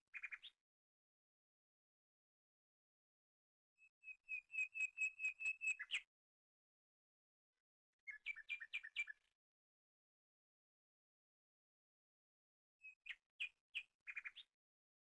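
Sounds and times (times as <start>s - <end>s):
songbird whistling: 4.0s - 6.0s, 8.1s - 9.3s, 12.9s - 14.4s.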